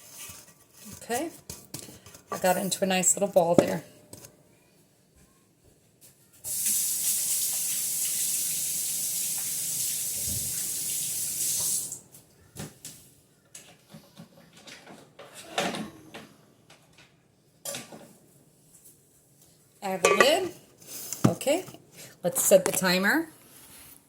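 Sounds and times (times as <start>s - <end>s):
kitchen tap running: 6.5s - 12.0s.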